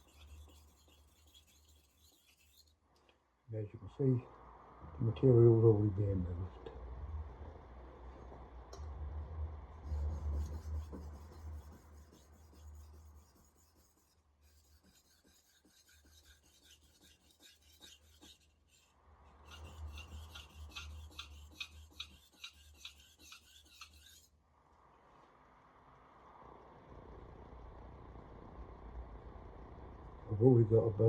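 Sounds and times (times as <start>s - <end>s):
knife scraping on whetstone: 0.0s - 2.8s, 10.0s - 18.9s, 19.5s - 24.3s.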